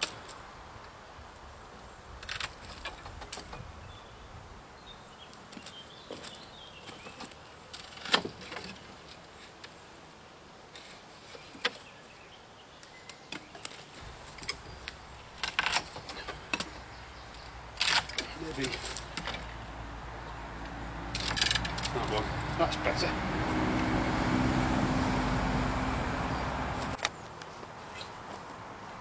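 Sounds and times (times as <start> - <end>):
brush rustling: 13.7 - 29.0
lopper snipping branches: 14.2 - 27.1.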